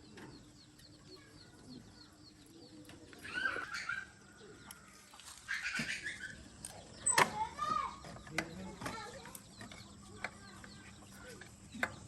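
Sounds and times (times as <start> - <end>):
low steady bird call: 0.0 - 12.0
loud bird call: 3.2 - 4.6, 5.4 - 8.0.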